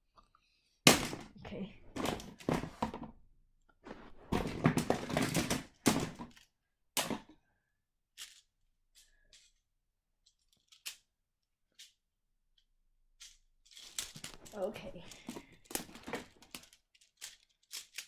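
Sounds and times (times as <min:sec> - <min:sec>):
plastic tiles clattering: 0:03.9 - 0:07.4, 0:08.2 - 0:09.6, 0:10.2 - 0:11.1, 0:11.7 - 0:12.0, 0:12.6 - 0:18.0.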